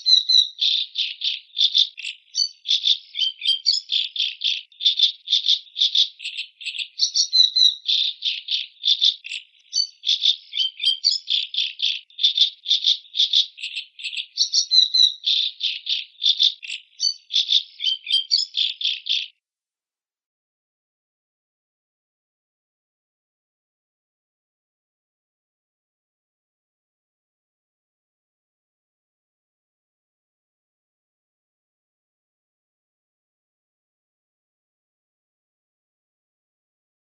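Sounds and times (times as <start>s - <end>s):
macaw harsh rasping calls: 0.0s - 19.3s.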